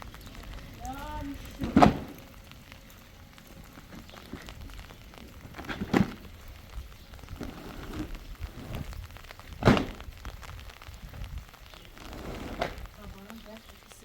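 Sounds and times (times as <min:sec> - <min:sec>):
heavy thuds: 0:00.0 - 0:06.7, 0:07.3 - 0:11.4
low background rumble: 0:00.0 - 0:14.0.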